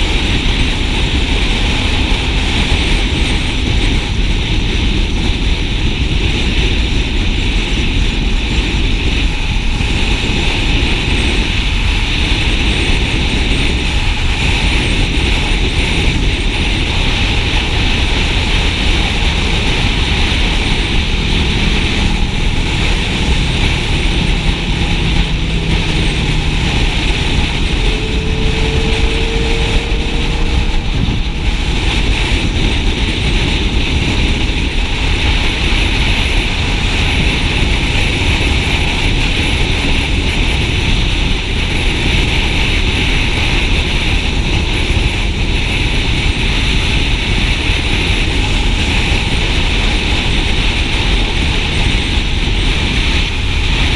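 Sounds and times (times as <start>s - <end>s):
motorcycle engine and road noise: 0.0s - 53.9s
wind rush on microphone: 0.0s - 53.9s
faint rising tone: 19.5s - 32.4s.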